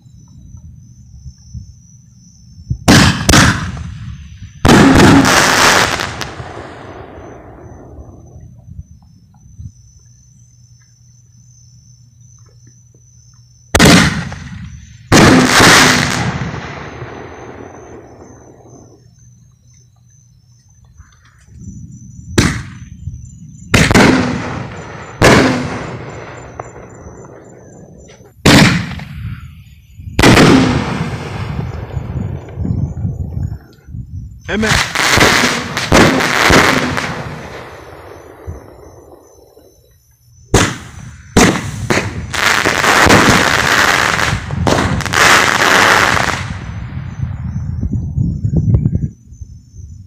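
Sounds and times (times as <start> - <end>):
firework shells booming: 2.7 - 9.4, 13.7 - 19.1, 22.3 - 23.0, 23.6 - 33.7, 34.6 - 39.9, 40.5 - 47.5.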